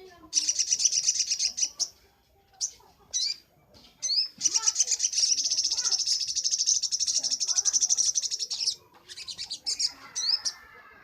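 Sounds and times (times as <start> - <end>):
soft bird chirps: 0.2 - 11.0
bird singing fast rattling trill: 0.3 - 1.9, 4.0 - 10.6.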